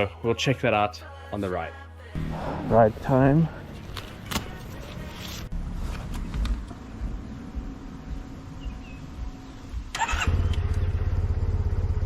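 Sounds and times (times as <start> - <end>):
motorcycle engine starting and idling: 6.0 - 12.0.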